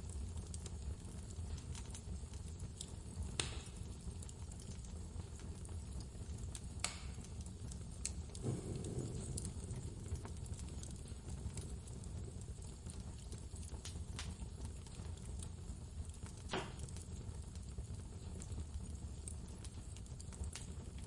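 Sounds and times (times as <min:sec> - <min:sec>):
wood fire crackling and popping: 0:00.0 - 0:21.0
blizzard wind rumbling: 0:08.4 - 0:11.4.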